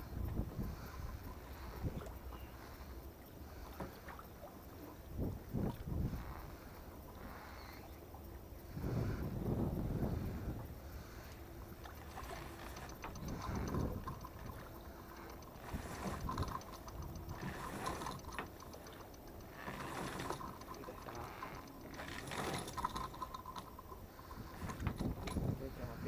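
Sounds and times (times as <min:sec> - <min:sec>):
hand tools clicking on metal: 0:11.8 - 0:25.5.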